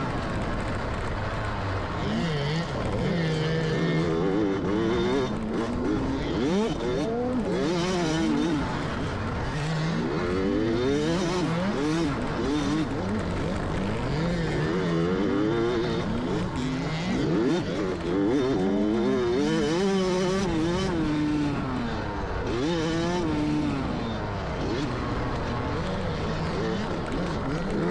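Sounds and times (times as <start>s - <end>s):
dirt bike engine revving: 0.0s - 27.9s.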